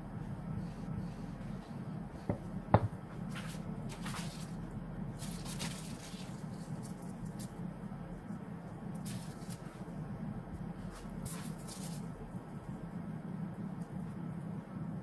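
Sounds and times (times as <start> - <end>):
steady low hum: 0.0 - 15.0
knocks on work surface: 2.3 - 3.0.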